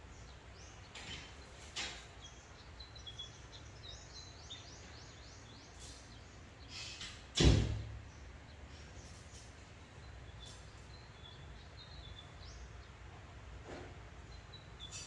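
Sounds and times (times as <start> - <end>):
loud thump: 7.4 - 7.9.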